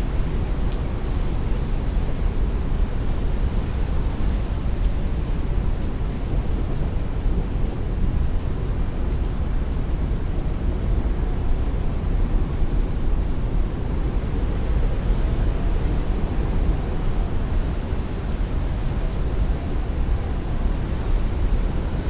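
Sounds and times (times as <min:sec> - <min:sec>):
heavy rain on a window: 0:00.0 - 0:22.0
strong wind: 0:09.8 - 0:22.0.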